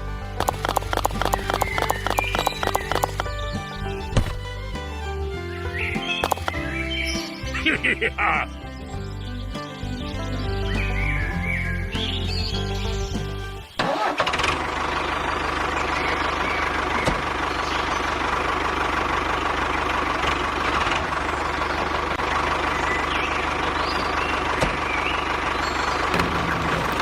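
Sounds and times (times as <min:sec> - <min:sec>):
music: 0:00.0 - 0:13.8, 0:26.2 - 0:27.0
vehicle engine starting and idling: 0:00.0 - 0:27.0
faint high chirps: 0:00.7 - 0:03.7.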